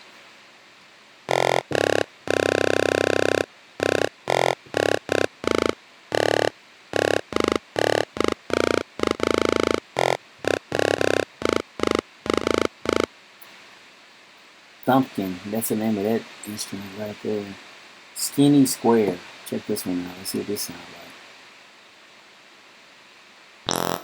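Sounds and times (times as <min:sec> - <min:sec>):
buzzy synthesizer staccato notes: 0:01.3 - 0:13.1, 0:23.7 - 0:24.0.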